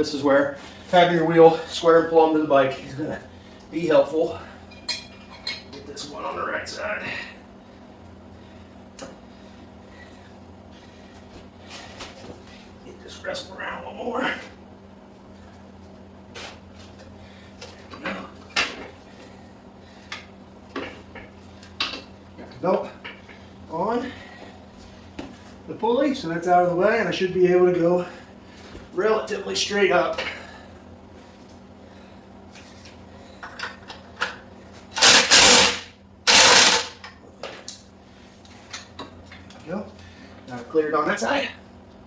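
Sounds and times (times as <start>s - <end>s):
impact wrench hammering: 35.0s - 37.0s.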